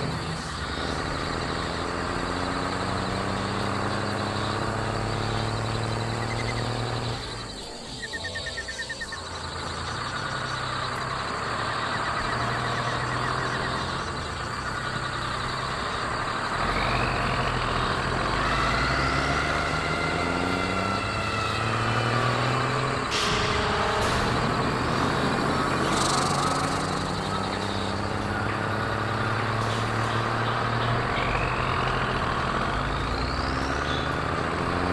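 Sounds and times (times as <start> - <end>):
truck engine revving: 0.0 - 34.9
rapid beeps: 4.9 - 17.8, 22.6 - 34.2.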